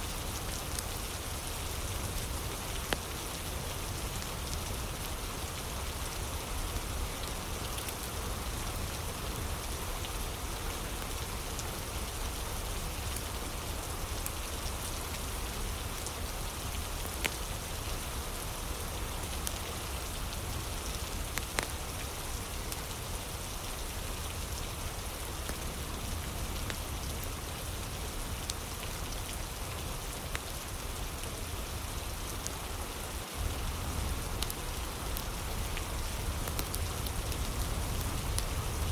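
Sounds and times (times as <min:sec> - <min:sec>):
rain falling on a surface: 0:00.0 - 0:38.9
fire crackling pops: 0:21.3 - 0:21.8, 0:34.3 - 0:38.9.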